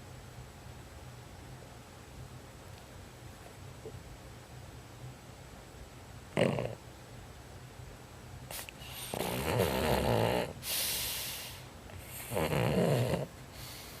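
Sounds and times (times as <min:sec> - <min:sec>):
dog snoring: 0:06.3 - 0:06.8, 0:08.5 - 0:14.0
hissing breath: 0:10.6 - 0:12.3, 0:13.5 - 0:14.0.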